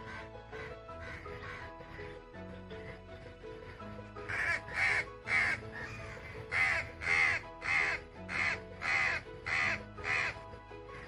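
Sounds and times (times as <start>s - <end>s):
bird cawing: 0.0s - 2.2s, 4.2s - 10.4s
background music with held notes: 0.0s - 11.0s.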